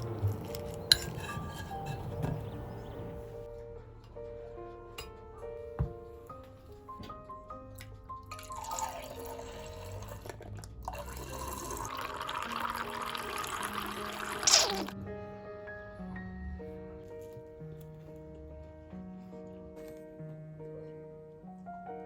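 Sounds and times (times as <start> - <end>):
soft background music: 0.0 - 22.0
water pouring: 8.4 - 15.0.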